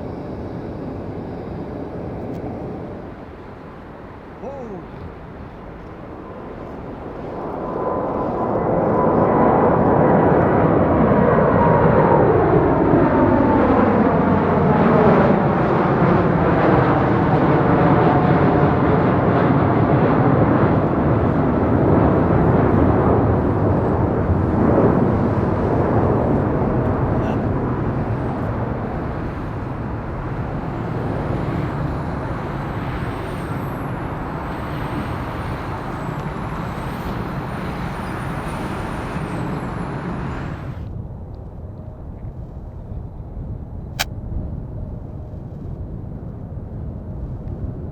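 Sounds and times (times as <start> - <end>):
jet engines passing: 0.0 - 42.1.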